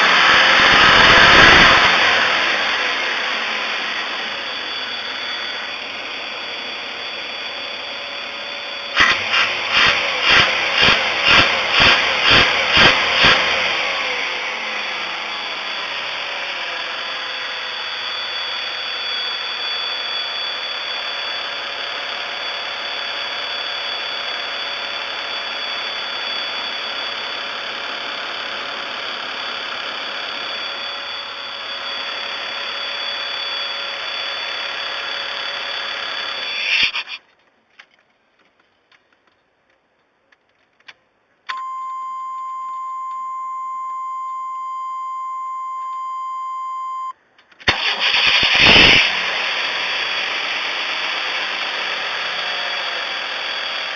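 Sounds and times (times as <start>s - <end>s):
high-pitched whine: 0.0s - 37.3s, 41.5s - 53.9s
engine cranking and running: 9.0s - 15.2s, 47.6s - 52.2s.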